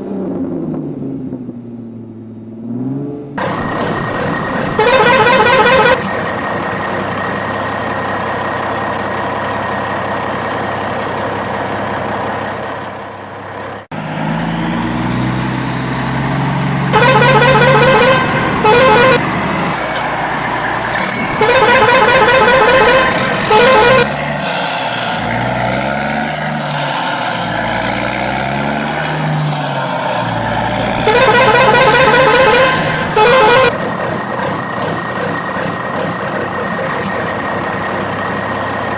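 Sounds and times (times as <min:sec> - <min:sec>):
vehicle engine running: 0:00.0 - 0:26.1, 0:30.1 - 0:38.9
vehicle horn honking: 0:04.8 - 0:06.1, 0:16.9 - 0:19.2, 0:21.3 - 0:24.1, 0:31.0 - 0:33.8.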